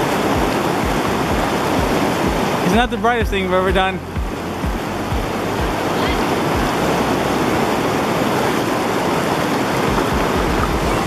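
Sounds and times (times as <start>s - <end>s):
river rushing: 0.0s - 11.0s
low thumps: 0.2s - 5.9s, 9.8s - 11.0s.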